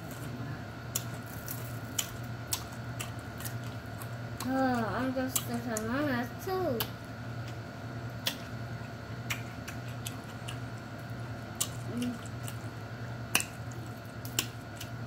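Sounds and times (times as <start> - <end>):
steady low hum: 0.0 - 15.0
crisp crunching bites: 0.9 - 4.5.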